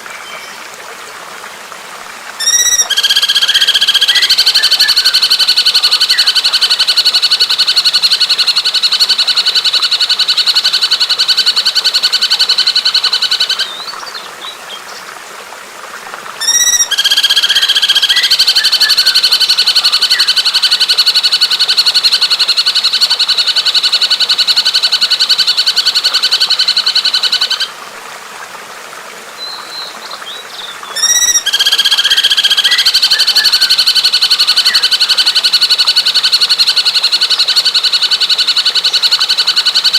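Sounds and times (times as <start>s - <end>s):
fast buzzy bird trill: 2.4s - 6.8s, 16.4s - 20.9s.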